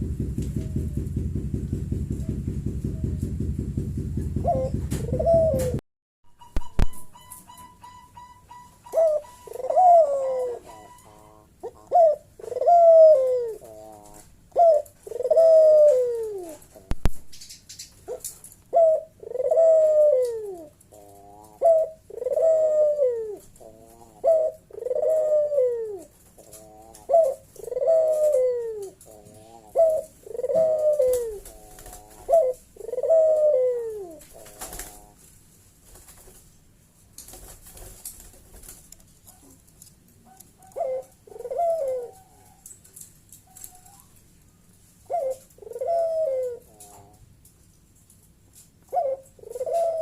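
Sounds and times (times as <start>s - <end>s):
dove cooing: 4.4s - 5.8s, 6.6s - 16.9s, 18.1s - 35.3s, 40.2s - 42.7s, 45.0s - 47.2s, 48.9s - 50.0s.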